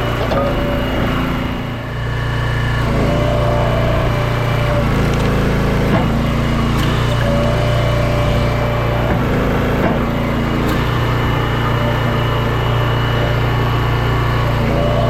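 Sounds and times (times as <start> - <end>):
hydraulic whine: 0.0 - 15.0
small gas engine running: 0.0 - 15.0.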